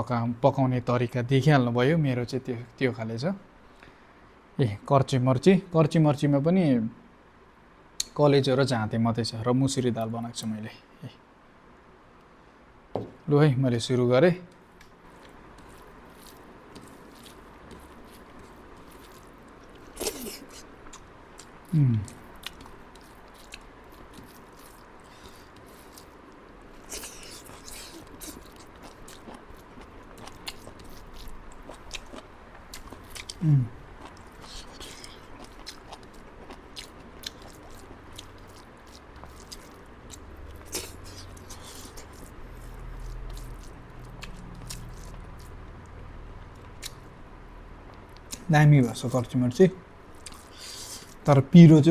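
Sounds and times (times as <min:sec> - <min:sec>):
person chewing and biting: 0:15.0 - 0:45.6, 0:50.1 - 0:51.3.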